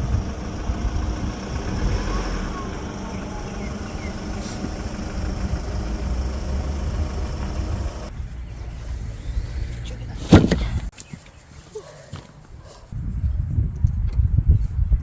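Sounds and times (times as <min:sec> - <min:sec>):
low engine-like rumble: 0:00.0 - 0:10.9.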